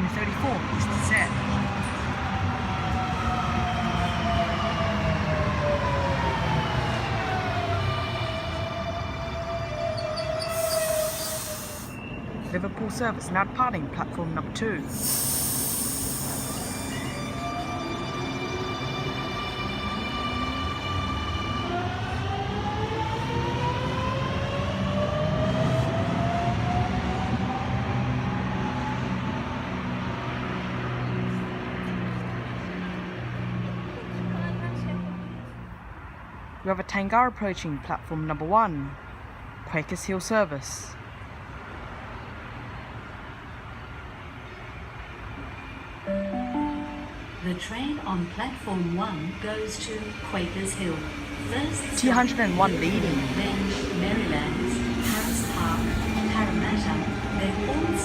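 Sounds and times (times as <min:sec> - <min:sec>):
electric train rumble and whine: 0:00.0 - 0:30.0.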